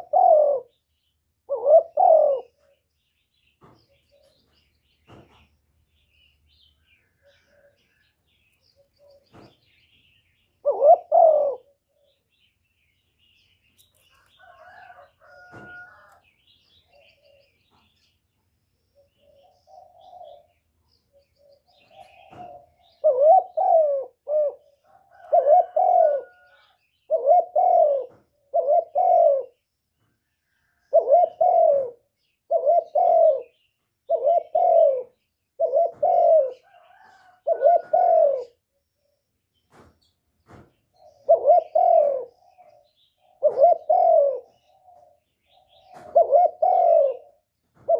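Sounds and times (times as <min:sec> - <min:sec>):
dove cooing: 0:00.0 - 0:02.9, 0:03.9 - 0:05.4, 0:07.0 - 0:09.8, 0:10.6 - 0:12.4, 0:14.4 - 0:16.2, 0:16.8 - 0:17.9, 0:19.0 - 0:29.6, 0:30.6 - 0:39.1, 0:41.0 - 0:47.9.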